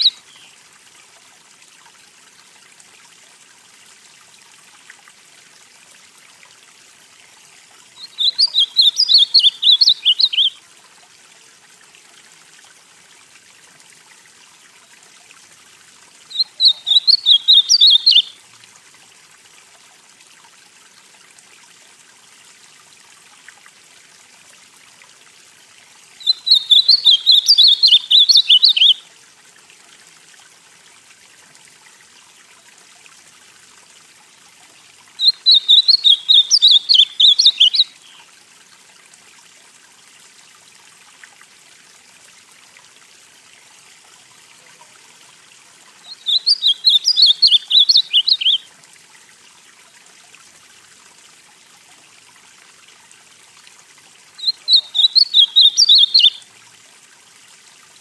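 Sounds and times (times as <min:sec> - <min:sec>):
bird singing warbled phrases: 0:00.0 - 0:00.6, 0:08.0 - 0:10.6, 0:16.3 - 0:18.4, 0:26.2 - 0:29.0, 0:35.2 - 0:38.2, 0:46.0 - 0:48.7, 0:54.4 - 0:56.4
faint steady hiss: 0:00.0 - 0:58.0.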